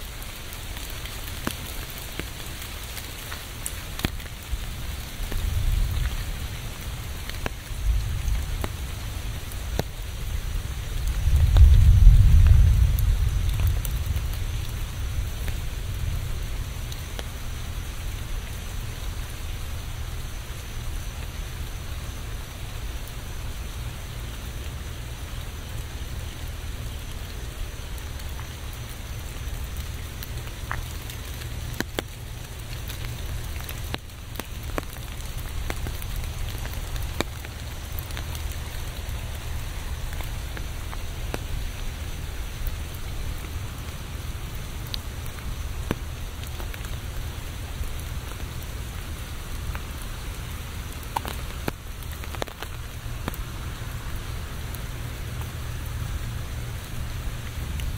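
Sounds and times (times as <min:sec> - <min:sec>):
steady rain hiss: 0:00.0 - 0:57.9
low rumble: 0:10.7 - 0:16.9.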